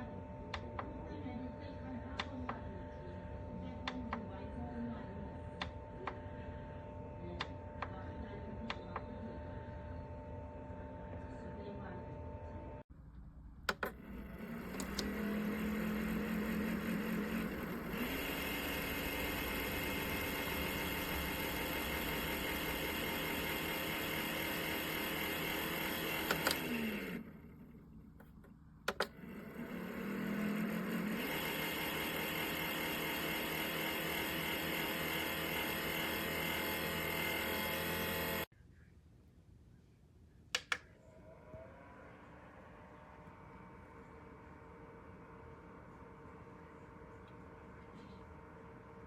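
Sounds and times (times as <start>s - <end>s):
clicks: 13.6s - 38.5s, 40.5s - 41.0s
small electric motor whirring: 13.7s - 38.5s.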